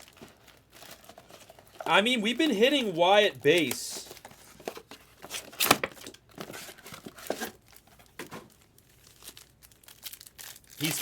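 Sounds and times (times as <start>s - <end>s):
card pack wrappers crinkling: 0.0s - 11.0s
cards being handled: 2.8s - 7.6s.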